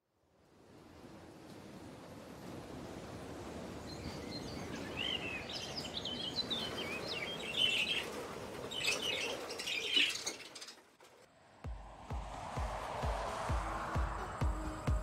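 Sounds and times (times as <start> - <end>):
birds chirping: 3.7 - 10.8.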